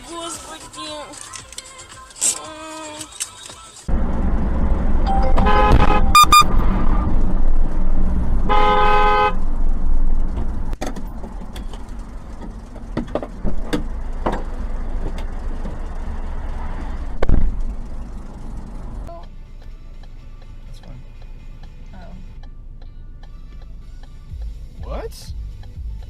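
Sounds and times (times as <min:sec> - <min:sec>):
engine and road noise rumble: 0:00.0 - 0:26.0
car horns honking: 0:05.0 - 0:07.4, 0:08.3 - 0:09.6.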